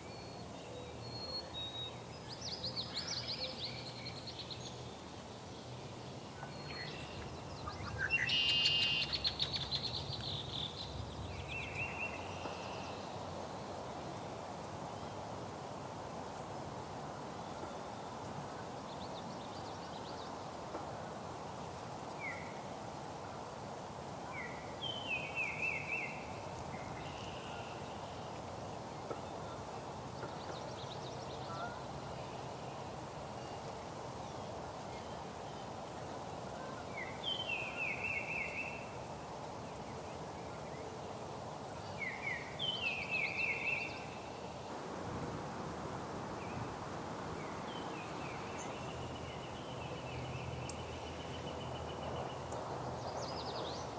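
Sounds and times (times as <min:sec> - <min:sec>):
songbird singing with trill: 0:00.0 - 0:05.0, 0:05.6 - 0:13.2, 0:24.4 - 0:28.4, 0:37.0 - 0:38.9, 0:41.8 - 0:44.6, 0:47.4 - 0:53.9
outdoor background noise: 0:00.0 - 0:53.9.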